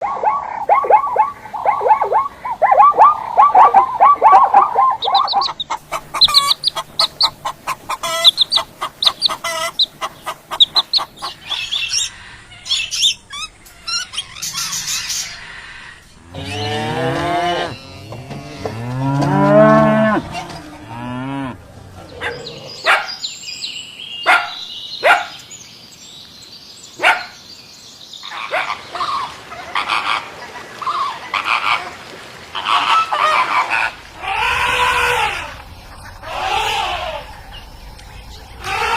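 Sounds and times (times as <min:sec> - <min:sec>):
high-pitched animal calls: 0:00.0 - 0:18.7, 0:32.6 - 0:37.9, 0:38.5 - 0:38.9
cow mooing: 0:16.2 - 0:22.8
long low animal call: 0:32.6 - 0:38.9.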